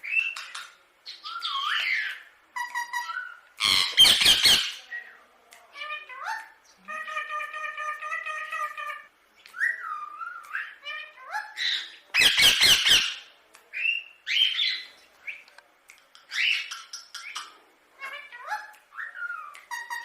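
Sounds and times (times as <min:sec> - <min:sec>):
parakeet chirping and whistling: 0:00.0 - 0:05.0, 0:09.5 - 0:13.2
parakeet harsh squawks: 0:01.4 - 0:04.8.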